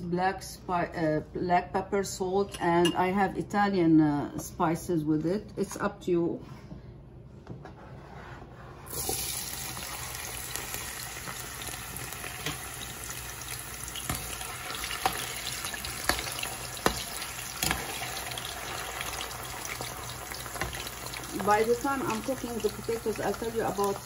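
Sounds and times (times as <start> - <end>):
potatoes sizzling in oil: 8.9 - 24.0.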